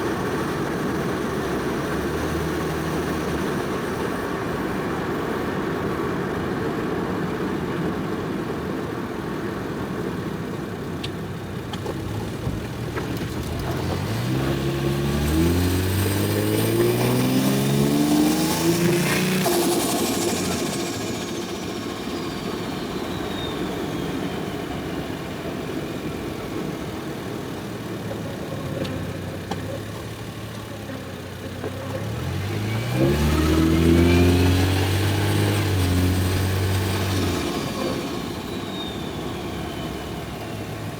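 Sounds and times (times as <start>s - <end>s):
car engine revving: 0.0s - 4.5s, 11.5s - 40.9s
sharp burst on throttle close: 12.8s - 28.1s, 32.0s - 40.9s
turbo whistle: 14.3s - 26.1s, 33.4s - 40.9s.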